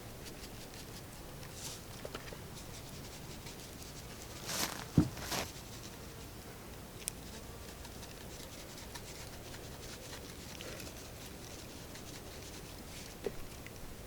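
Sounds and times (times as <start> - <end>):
rustling shakes: 4.1 - 5.6.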